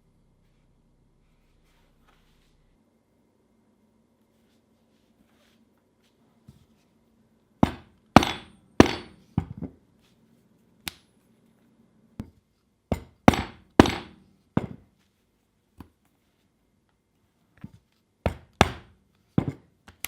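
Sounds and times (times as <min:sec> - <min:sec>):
hammer striking steel: 0:07.6 - 0:09.3, 0:12.9 - 0:14.3.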